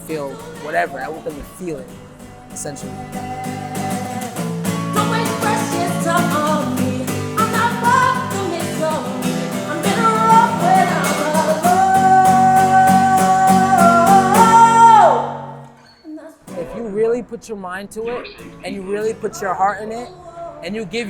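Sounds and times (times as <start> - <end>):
person singing: 0.0 - 15.6
strummed guitar: 0.0 - 15.8, 18.2 - 21.0.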